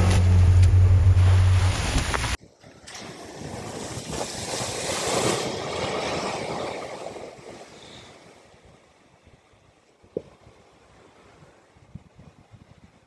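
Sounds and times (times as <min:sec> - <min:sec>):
vehicle splashing through water: 0:00.0 - 0:02.4.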